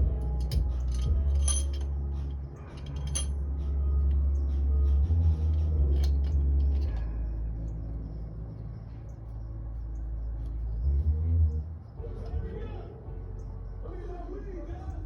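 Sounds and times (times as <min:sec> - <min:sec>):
bass-heavy background music: 0:00.0 - 0:15.0
metal tools clinking: 0:00.2 - 0:03.4, 0:05.8 - 0:07.2.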